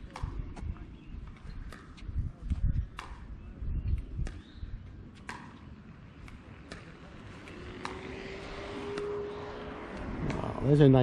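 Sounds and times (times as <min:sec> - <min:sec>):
low wind rumble on microphone: 0:00.0 - 0:05.1, 0:08.2 - 0:11.0
paddles striking plastic balls: 0:01.3 - 0:03.4.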